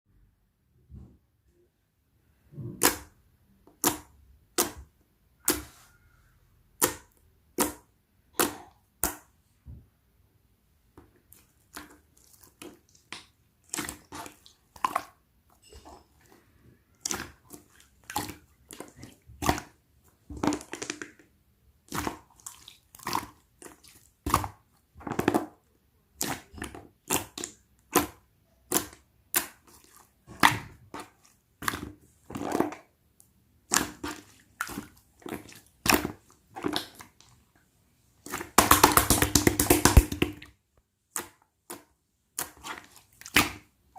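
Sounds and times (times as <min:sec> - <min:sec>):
wet squelch: 0:02.6 - 0:09.3, 0:11.2 - 0:21.2, 0:21.8 - 0:37.5, 0:38.1 - 0:40.5, 0:41.1 - 0:43.8
slime popping and clicking: 0:38.3 - 0:40.4.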